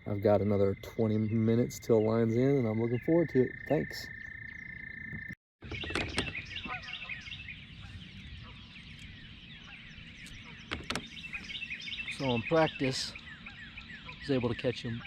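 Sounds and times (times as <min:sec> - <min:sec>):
frog trilling: 0:00.0 - 0:05.4
birds chirping and singing: 0:00.0 - 0:15.0.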